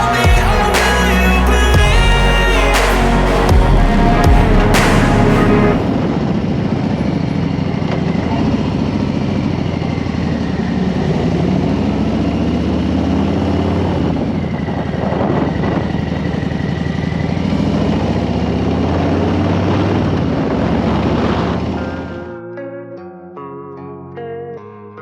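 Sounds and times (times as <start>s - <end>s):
wind rush: 1.5s - 7.6s.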